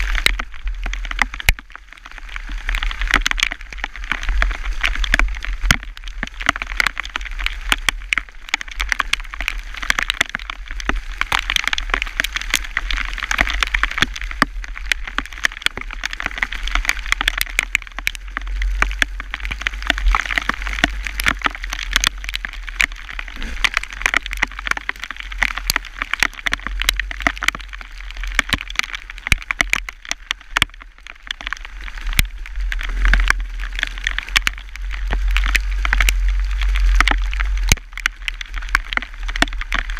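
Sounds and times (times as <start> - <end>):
rain and hail pelting: 0.0 - 39.9
low rumble: 17.8 - 28.3.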